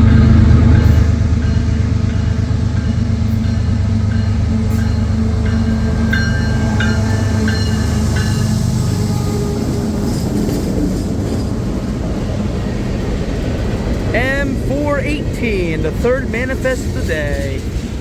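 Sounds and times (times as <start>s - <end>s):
diesel locomotive drone: 0.0s - 18.0s
freight cars rumbling past: 0.0s - 18.0s
high wheel squeals: 3.2s - 13.8s.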